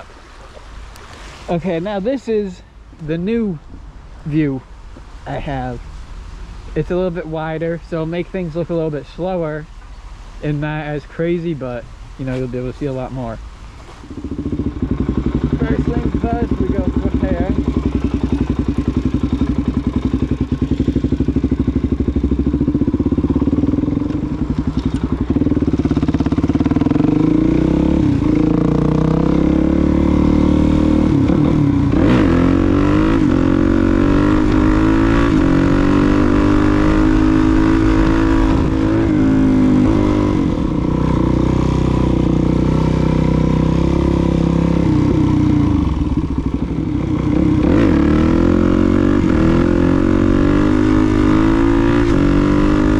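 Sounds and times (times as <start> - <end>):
motorcycle engine idling and revving: 11.9 - 52.9.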